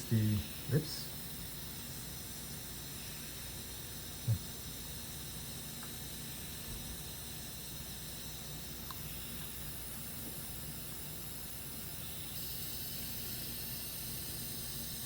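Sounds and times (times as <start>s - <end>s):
steady background hiss: 0.0s - 1.5s.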